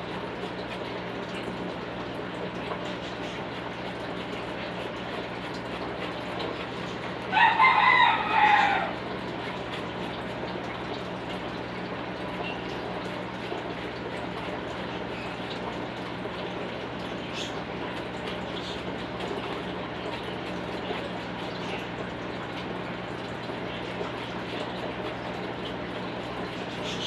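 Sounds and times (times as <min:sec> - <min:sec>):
rooster crowing: 0:07.3 - 0:09.0.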